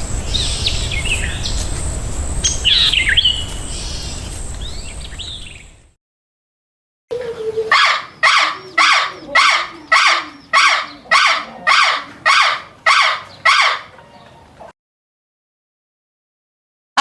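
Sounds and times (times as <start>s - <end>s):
bird giving harsh calls: 7.4s - 13.9s.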